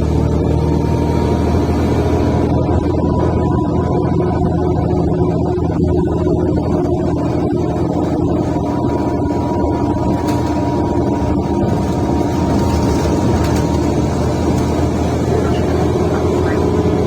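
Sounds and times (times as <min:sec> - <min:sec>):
bus diesel engine running: 0:00.0 - 0:17.0
rough loud exhaust: 0:00.0 - 0:17.0.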